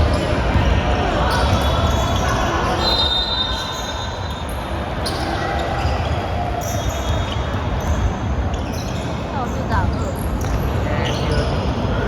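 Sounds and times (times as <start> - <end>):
basketball bouncing on court: 0.0 - 2.3, 5.0 - 11.5
crowd and player noise: 0.0 - 12.0.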